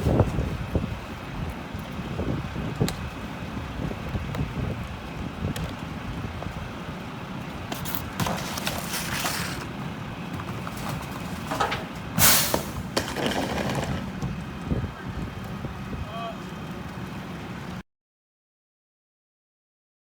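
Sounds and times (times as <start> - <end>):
garbage truck diesel engine rumbling: 0.0 - 17.8
air brake hissing bursts: 12.2 - 12.9.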